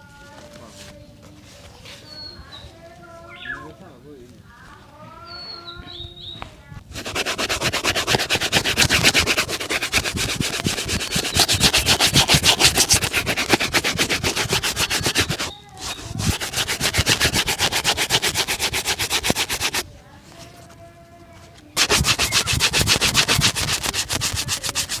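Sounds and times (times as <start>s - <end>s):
shoe buffing strokes: 6.9s - 19.8s, 21.8s - 25.0s.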